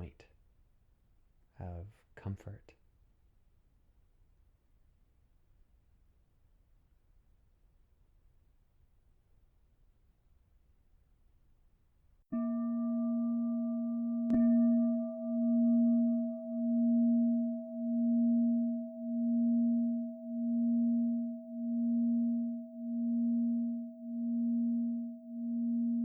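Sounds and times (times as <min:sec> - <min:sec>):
singing bowl ringing: 0:12.3 - 0:26.0.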